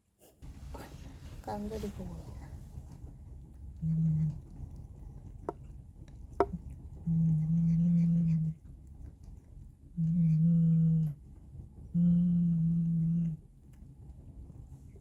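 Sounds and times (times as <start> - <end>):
cat growling: 3.8 - 4.9, 6.4 - 8.7, 9.9 - 13.5.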